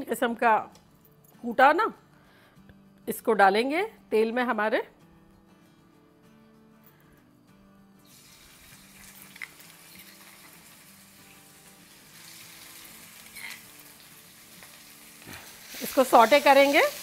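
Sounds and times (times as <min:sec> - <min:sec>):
paste sizzling in hot oil: 0:08.0 - 0:17.0.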